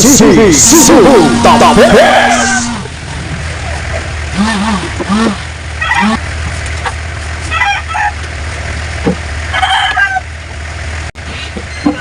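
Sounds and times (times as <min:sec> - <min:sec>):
chickens calling: 0:00.8 - 0:08.4, 0:09.5 - 0:10.4.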